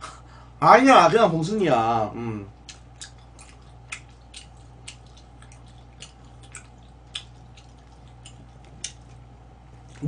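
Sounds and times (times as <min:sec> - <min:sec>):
faint steady hum: 0:00.0 - 0:10.0
wet chewing: 0:02.5 - 0:10.0
lip smacks: 0:02.6 - 0:10.0.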